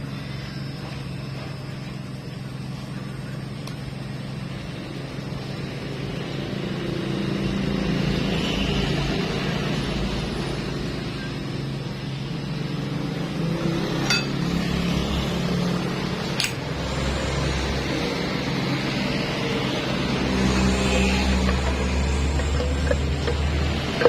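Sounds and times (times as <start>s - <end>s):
vehicle engine humming: 0.0s - 24.0s
metallic clinks of tools: 14.1s - 14.4s.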